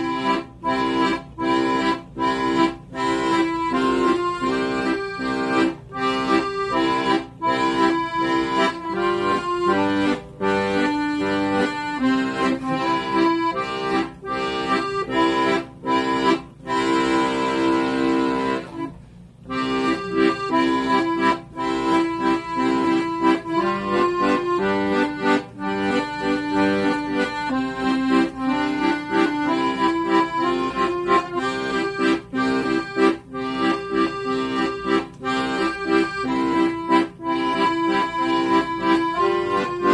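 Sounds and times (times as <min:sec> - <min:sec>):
accordion playing a tune: 0:00.0 - 0:39.9.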